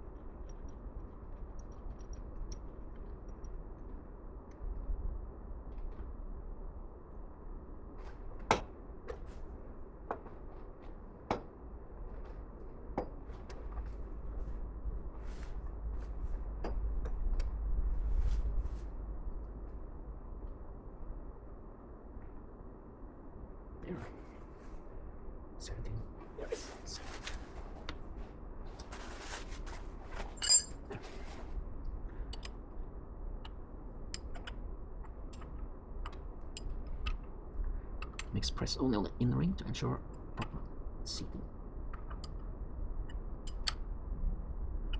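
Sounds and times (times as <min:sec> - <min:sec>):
low steady hum: 0:00.0 - 0:44.9
tools knocking and clinking: 0:30.4 - 0:30.8.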